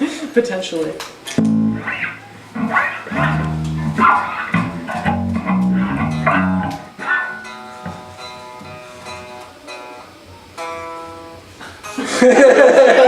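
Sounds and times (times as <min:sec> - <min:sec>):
bass guitar notes: 0:01.3 - 0:06.9
guitar chords: 0:01.3 - 0:09.8.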